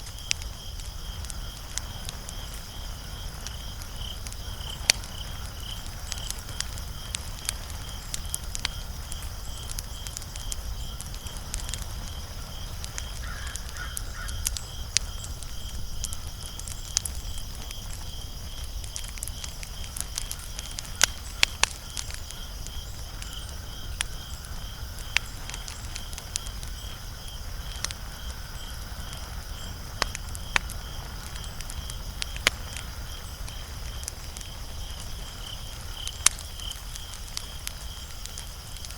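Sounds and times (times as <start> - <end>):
wood fire crackling and popping: 0.0 - 38.9.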